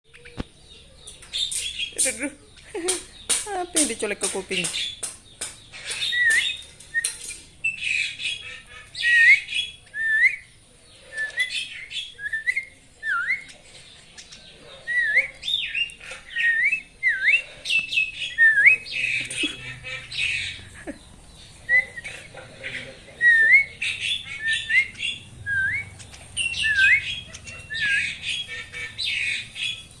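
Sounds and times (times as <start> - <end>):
myna whistled calls: 5.6 - 20.7, 21.5 - 30.0.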